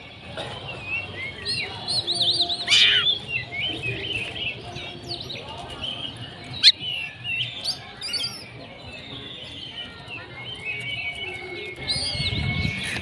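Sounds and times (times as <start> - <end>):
bird singing: 0.7 - 13.0.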